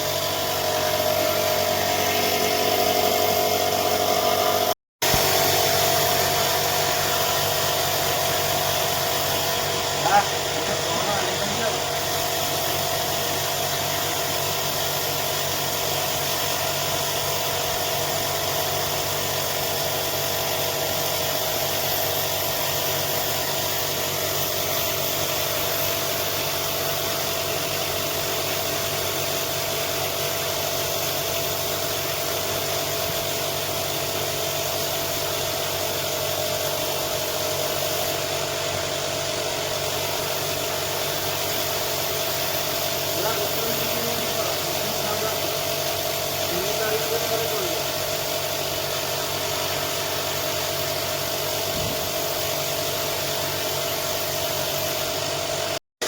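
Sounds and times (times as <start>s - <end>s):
machine motor humming and whining: 0.0s - 25.0s, 35.2s - 50.8s.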